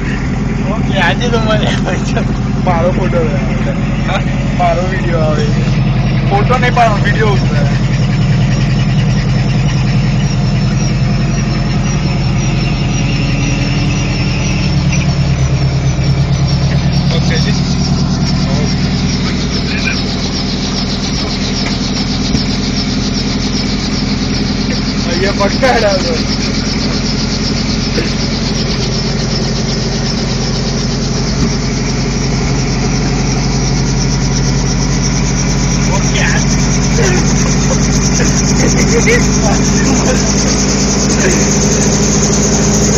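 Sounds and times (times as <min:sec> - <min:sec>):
helicopter engine and rotor: 0:14.8 - 0:23.6, 0:24.4 - 0:29.9.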